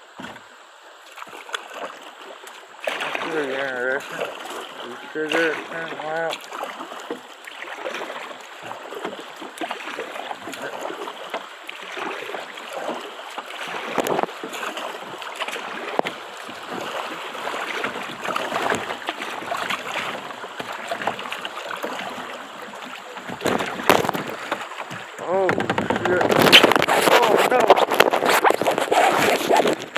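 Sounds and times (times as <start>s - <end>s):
river water rushing and splashing: 0.0s - 29.9s
sharp knocks on kayak: 0.2s - 0.4s, 23.2s - 29.9s.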